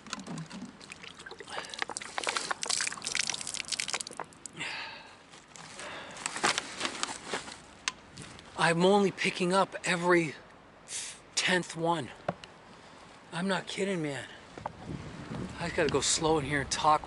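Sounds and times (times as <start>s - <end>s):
plastic bottles crackling: 0.0s - 4.6s, 5.3s - 7.7s.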